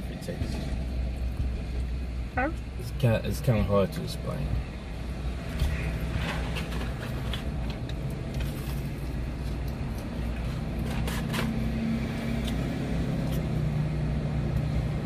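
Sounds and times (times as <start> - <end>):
car engine idling: 0.0 - 11.8.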